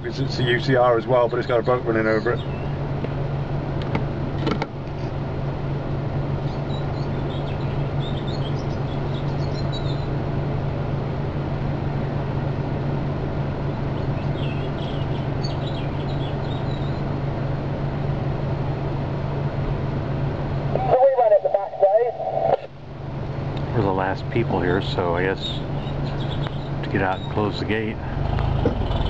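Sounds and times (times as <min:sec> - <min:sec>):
vehicle engine idling: 0:00.0 - 0:29.0
faint birds chirping: 0:00.1 - 0:03.2, 0:06.3 - 0:10.9, 0:13.6 - 0:17.2, 0:23.6 - 0:29.0.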